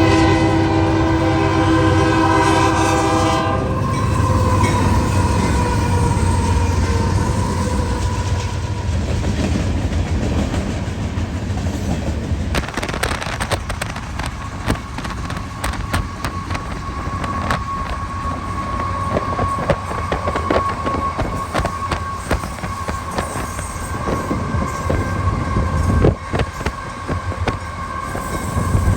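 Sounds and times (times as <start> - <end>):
train horn: 0.0 - 9.4, 15.6 - 28.9
locomotive rumble: 0.0 - 28.9
thin steady squeal: 3.6 - 9.1, 14.4 - 28.9
wheels clicking over rail joints: 3.8 - 28.9.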